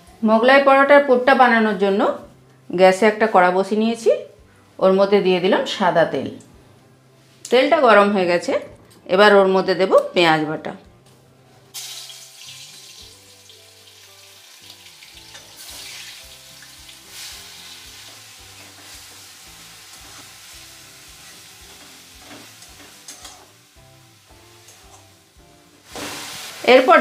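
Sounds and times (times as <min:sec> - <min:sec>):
paste sizzling in hot oil: 0:11.7 - 0:27.0.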